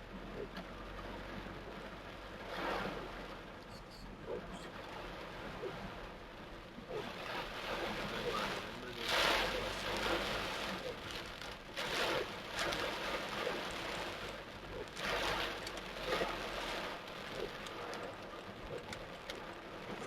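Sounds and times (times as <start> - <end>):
torrential rain pouring: 0.0 - 20.0
sharp drips and taps: 17.1 - 19.5.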